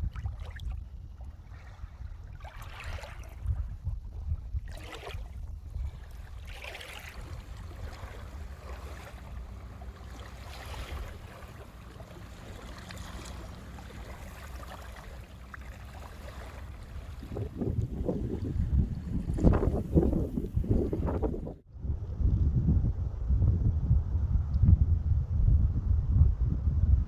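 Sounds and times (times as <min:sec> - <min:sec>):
wind buffeting microphone: 0:00.0 - 0:27.0
ocean surf: 0:06.7 - 0:18.5.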